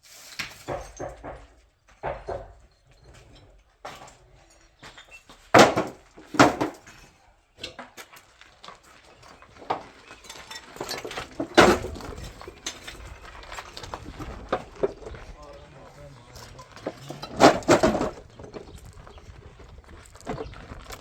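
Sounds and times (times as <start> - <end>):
hard objects knocking and clattering: 0.6 - 2.7, 5.5 - 7.0, 9.6 - 15.7, 16.4 - 21.0.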